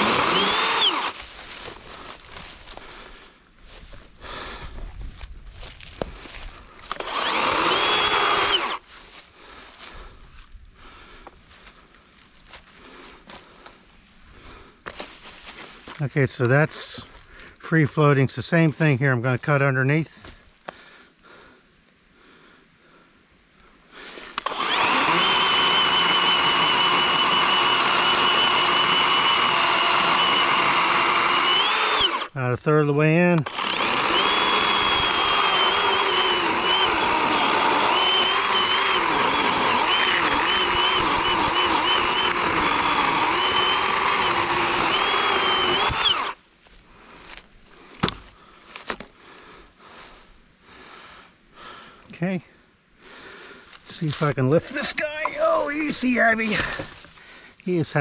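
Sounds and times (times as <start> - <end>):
chainsaw clicks: 0.0 - 1.8, 6.8 - 8.8, 24.3 - 32.4, 33.4 - 46.4
electric chainsaw cutting: 0.0 - 3.0, 5.6 - 9.2, 24.3 - 32.4, 33.4 - 46.4, 54.7 - 57.0.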